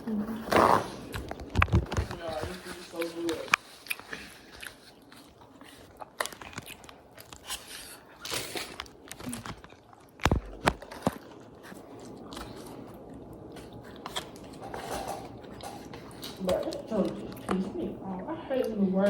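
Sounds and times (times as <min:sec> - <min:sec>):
small crackly clicks: 0:03.2 - 0:12.6
person biting and chewing food: 0:03.5 - 0:17.5.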